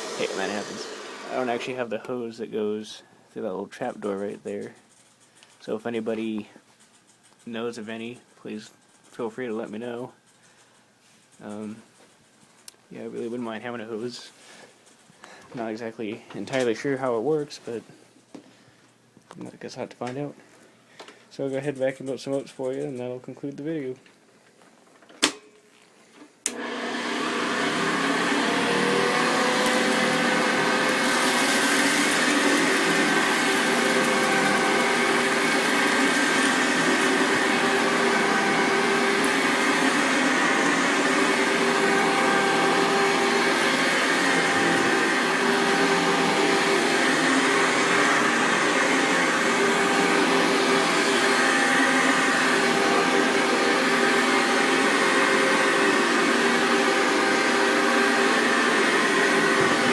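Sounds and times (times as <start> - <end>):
vacuum cleaner motor running: 0.0 - 1.9, 26.5 - 59.9
vacuuming up oats: 0.0 - 4.9, 26.4 - 59.9.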